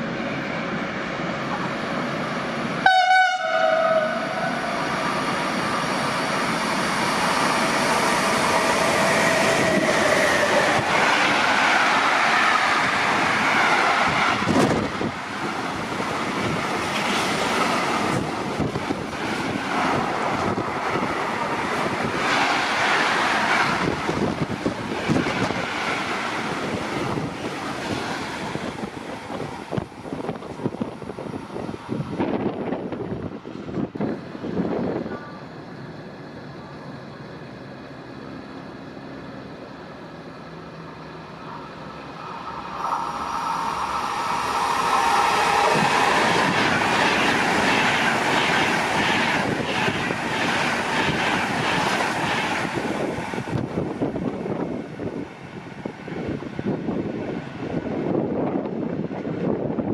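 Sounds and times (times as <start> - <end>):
train rumbling and rattling past: 0.0 - 59.9
train horn blast: 2.8 - 4.8.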